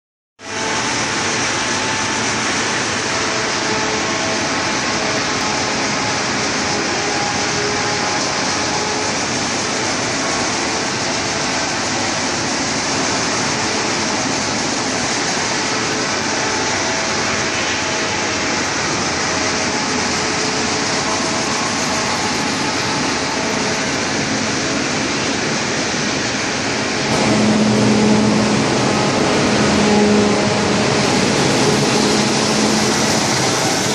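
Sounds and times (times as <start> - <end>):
wood chipper running: 0.4 - 33.9
low hum: 26.7 - 33.9.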